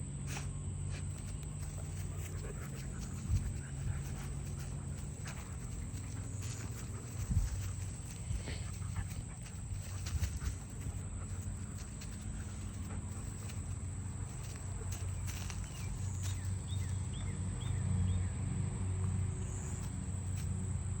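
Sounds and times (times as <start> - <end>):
light steps or rustling: 0.3 - 17.0
low rumble: 0.7 - 18.2
small bird chirping: 1.2 - 18.4.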